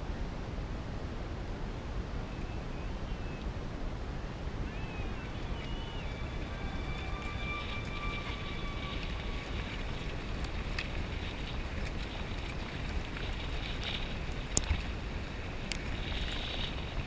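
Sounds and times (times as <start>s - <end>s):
wind rushing on microphone: 0.0s - 17.0s.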